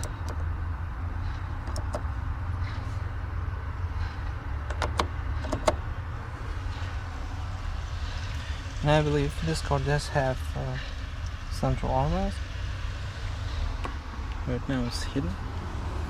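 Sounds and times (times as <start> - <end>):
car cabin rumble: 0.0 - 10.3
sharp clicks: 1.6 - 2.1.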